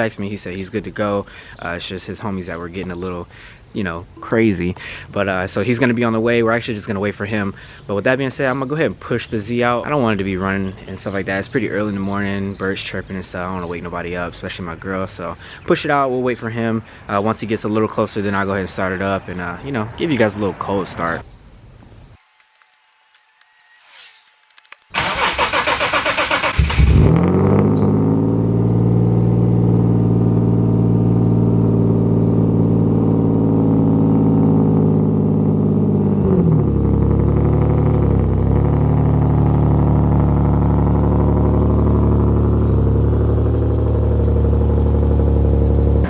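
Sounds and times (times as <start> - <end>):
starter motor cranking: 22.2 - 27.1.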